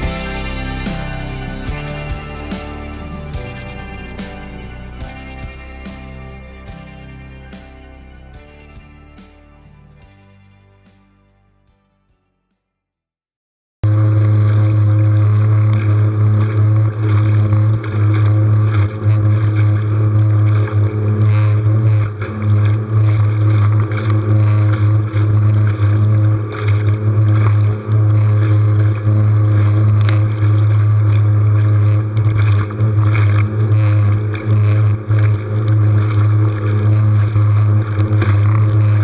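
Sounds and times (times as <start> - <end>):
small outboard motor droning: 0.0 - 10.0, 13.9 - 39.0.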